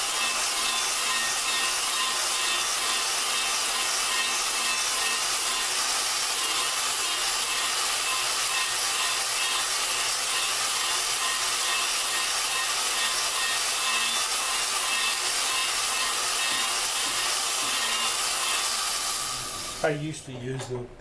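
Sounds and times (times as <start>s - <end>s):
valve grinding against seat: 0.0s - 19.9s.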